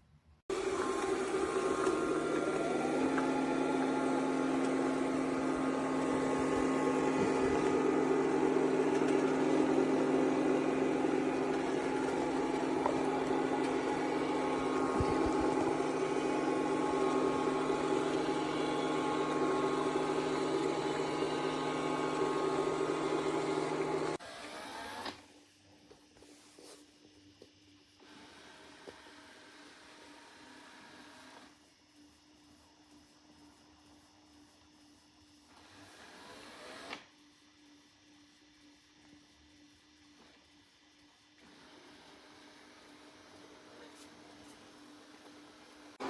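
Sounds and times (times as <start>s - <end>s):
robot vacuum motor whining: 0.5s - 25.4s, 35.5s - 37.2s.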